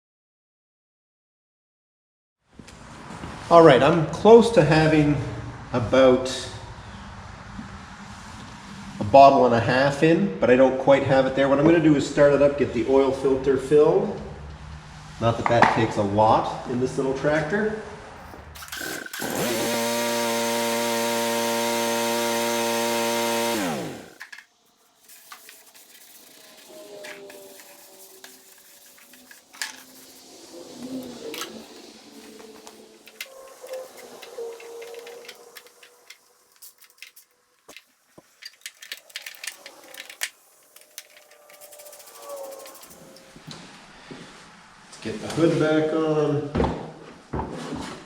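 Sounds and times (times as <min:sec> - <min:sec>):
small hard parts clicking: 0:18.2 - 0:43.4
lawn tractor engine running: 0:18.3 - 0:24.4.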